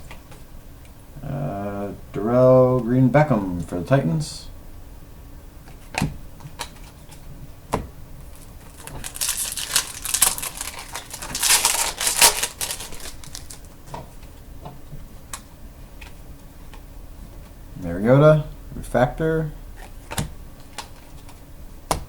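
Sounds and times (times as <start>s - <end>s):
cards sliding and rustling: 8.7s - 13.7s.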